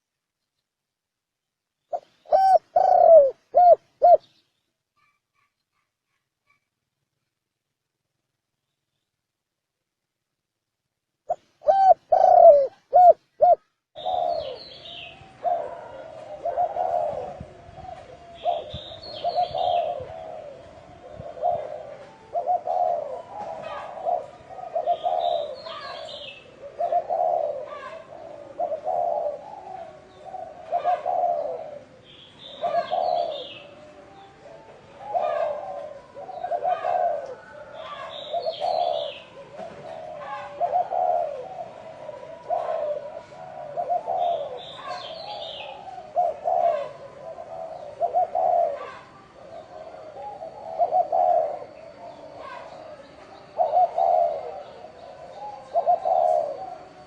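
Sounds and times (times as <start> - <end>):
dove cooing: 1.9 - 4.4, 11.3 - 57.0.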